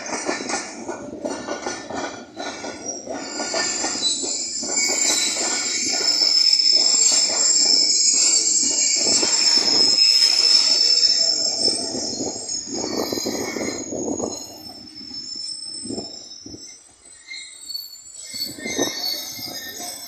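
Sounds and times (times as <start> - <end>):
train cars rumbling past: 0.0 - 20.0
train wheels squealing: 0.0 - 20.0.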